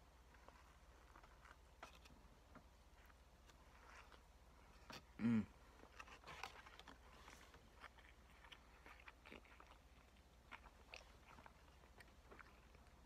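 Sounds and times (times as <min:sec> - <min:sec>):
person chewing food: 0:00.0 - 0:13.0
person humming: 0:05.2 - 0:05.5.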